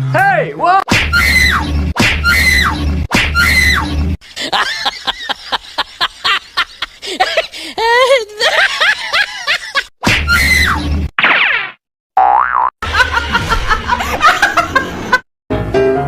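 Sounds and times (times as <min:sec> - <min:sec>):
laugh-like voice sounds: 0:04.3 - 0:10.5, 0:12.8 - 0:15.2.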